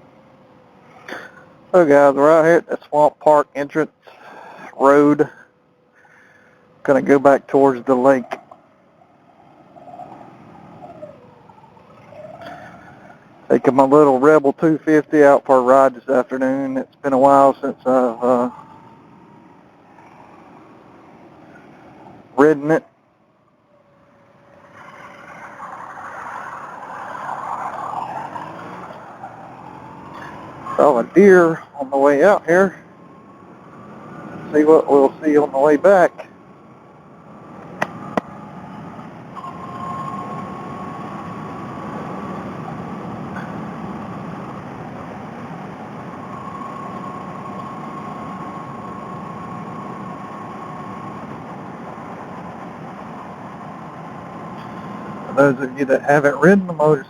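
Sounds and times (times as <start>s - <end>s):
faint steady whine: 0.0s - 57.0s.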